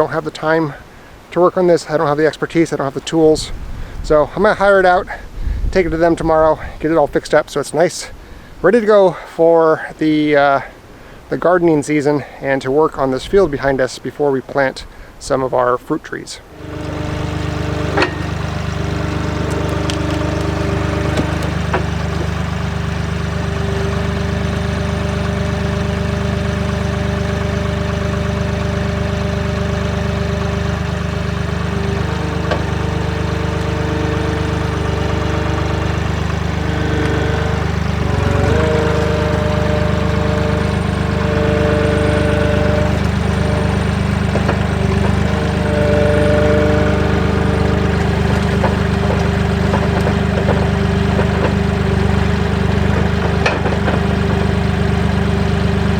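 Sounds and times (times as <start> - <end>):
tractor engine running: 0.0 - 7.2, 16.4 - 55.9
steady tones: 16.4 - 55.9.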